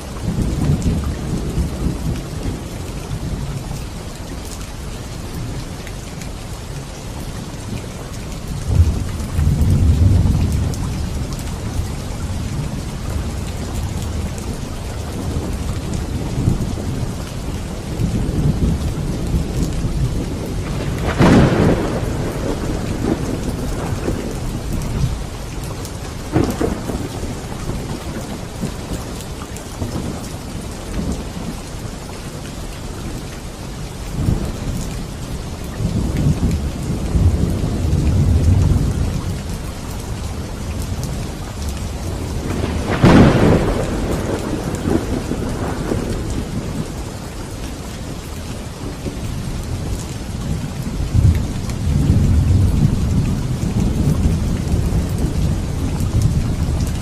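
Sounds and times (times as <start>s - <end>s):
steady rain: 0.0s - 57.0s
thunder rumble: 8.6s - 29.2s, 35.8s - 57.0s
sharp thunderclap: 20.0s - 25.2s, 42.2s - 47.0s.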